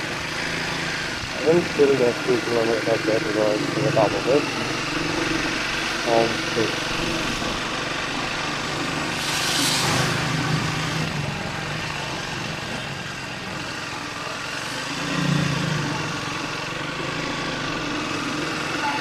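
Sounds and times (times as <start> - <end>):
motorcycle engine running: 0.0 - 19.0
hissing noise: 9.1 - 11.1.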